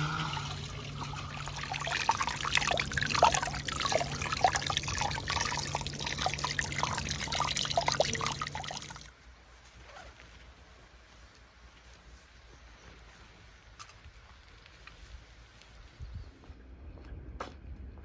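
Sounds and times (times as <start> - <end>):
water trickling and splashing: 0.0 - 9.1.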